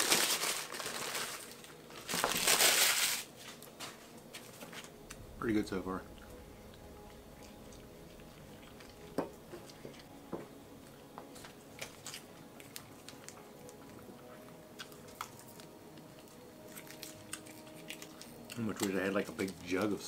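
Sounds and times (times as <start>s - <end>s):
person chewing food: 6.7s - 18.9s.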